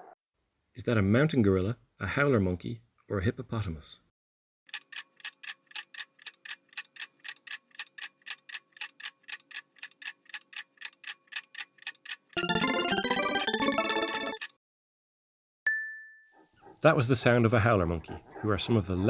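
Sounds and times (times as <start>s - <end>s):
clock ticking: 4.7s - 14.6s
bright chime: 12.4s - 14.4s.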